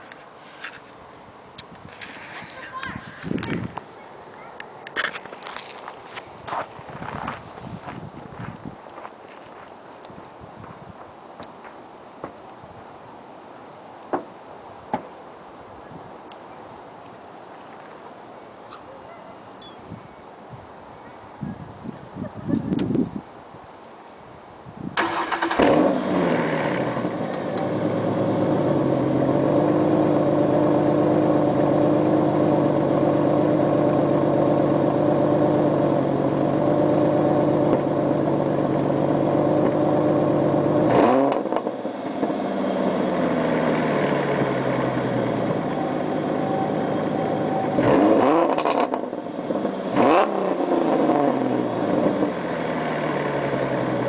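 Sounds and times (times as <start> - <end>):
car engine starting: 24.9 - 54.0
car engine idling: 25.0 - 50.0, 50.6 - 54.0
car engine revving: 25.0 - 54.0.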